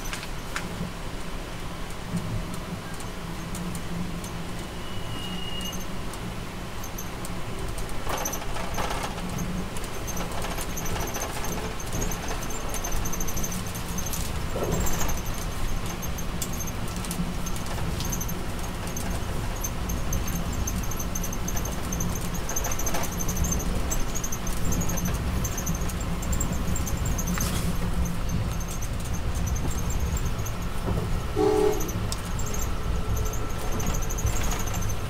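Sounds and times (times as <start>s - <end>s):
train car rumbling on track: 0.0s - 35.0s
brief pitched tone: 4.6s - 5.9s, 31.4s - 33.6s.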